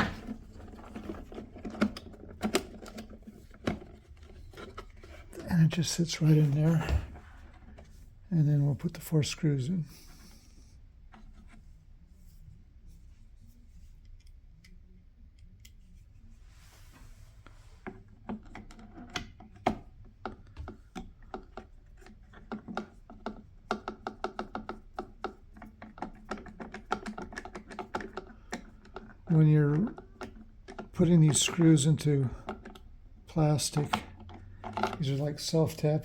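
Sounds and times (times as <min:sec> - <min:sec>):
light handling sounds: 0:00.0 - 0:19.8, 0:24.3 - 0:36.0.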